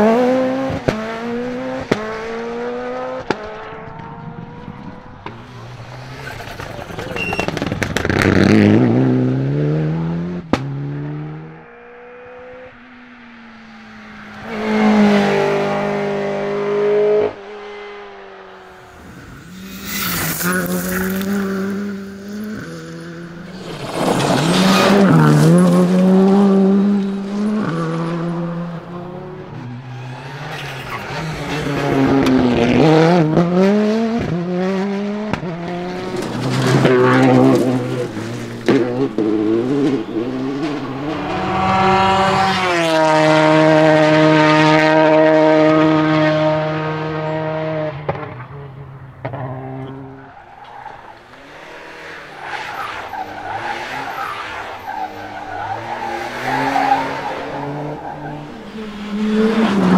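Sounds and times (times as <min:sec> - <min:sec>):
rally car engines revving: 0:00.0 - 0:59.9
tyres on gravel: 0:18.8 - 0:28.2.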